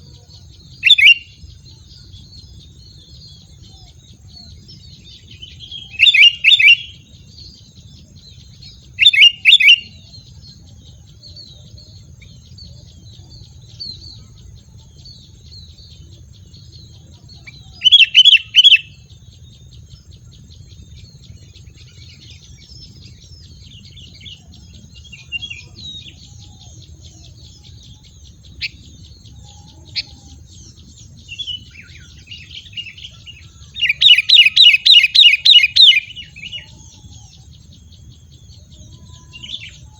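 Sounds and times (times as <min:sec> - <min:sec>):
small birds chattering: 0:00.0 - 0:39.9
steady high-pitched whine: 0:00.0 - 0:39.9
bird calling in rapid bursts: 0:17.9 - 0:18.9, 0:32.9 - 0:36.6.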